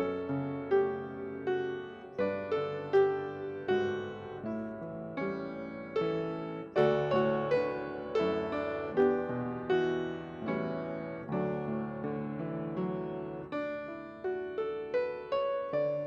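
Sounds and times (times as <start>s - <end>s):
slow gentle piano piece: 0.0s - 16.0s.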